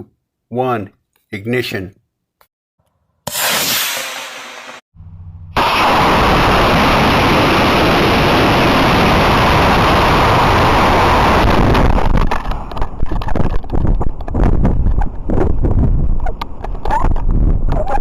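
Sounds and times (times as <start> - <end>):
rocket motor roaring: 3.3 - 12.3
wind buffeting microphone: 6.3 - 18.0.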